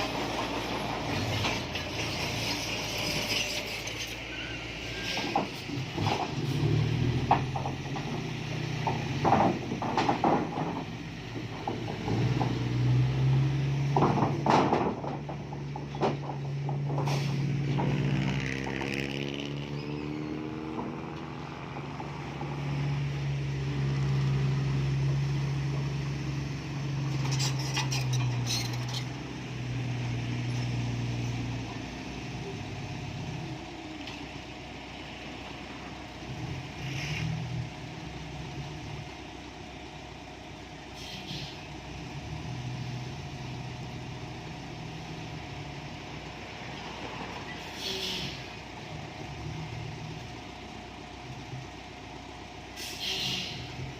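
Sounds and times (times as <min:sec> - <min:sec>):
diesel truck engine revving: 0:05.6 - 0:09.9, 0:10.8 - 0:39.3
short air hisses: 0:17.1 - 0:17.5, 0:41.0 - 0:41.6, 0:47.6 - 0:48.5, 0:52.8 - 0:53.7.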